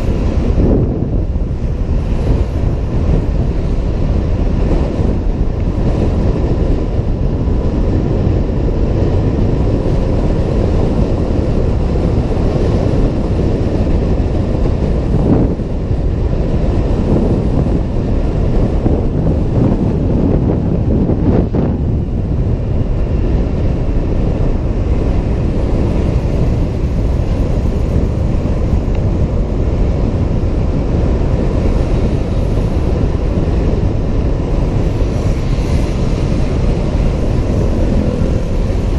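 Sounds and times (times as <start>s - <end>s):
road noise: 0.0s - 38.9s
wind buffeting microphone: 0.0s - 38.9s.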